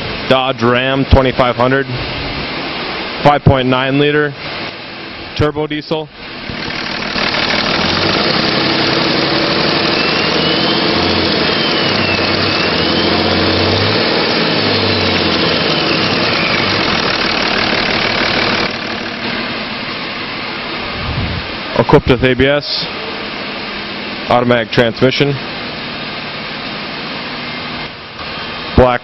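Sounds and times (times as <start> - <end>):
high turbo whine: 0.0 - 29.0
diesel engine revving: 6.1 - 22.2.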